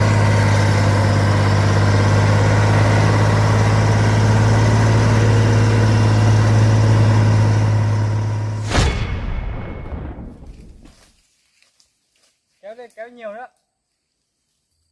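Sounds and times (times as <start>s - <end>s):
truck engine idling: 0.0s - 8.8s.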